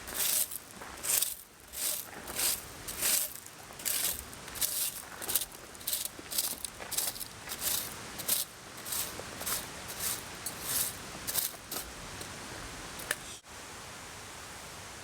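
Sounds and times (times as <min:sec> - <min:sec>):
gear rustling and crinkling: 0:00.0 - 0:12.0
stream rushing: 0:00.0 - 0:13.1.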